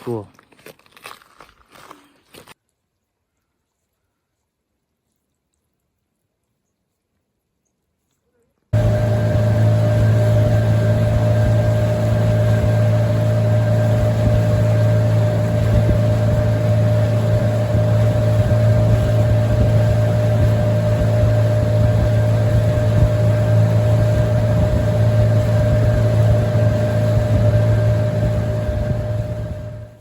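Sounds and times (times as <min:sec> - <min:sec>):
boat motor drone: 0:08.8 - 0:30.0.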